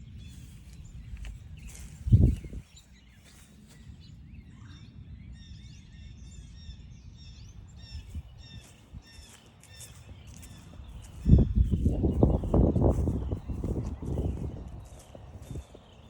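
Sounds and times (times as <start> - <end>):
small songbirds chirping: 0.0 - 16.0
steady low rumble: 10.2 - 16.0.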